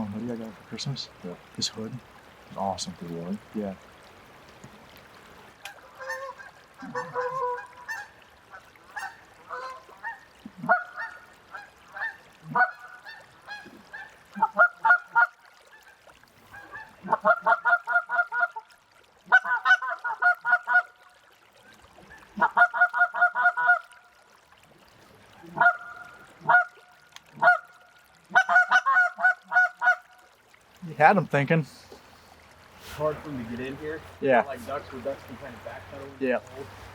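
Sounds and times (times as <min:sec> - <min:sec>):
goose call honks and clucks: 0:05.6 - 0:15.4, 0:16.6 - 0:18.6, 0:19.3 - 0:20.9, 0:22.2 - 0:23.8, 0:25.5 - 0:26.8, 0:27.4 - 0:27.7, 0:28.3 - 0:30.1.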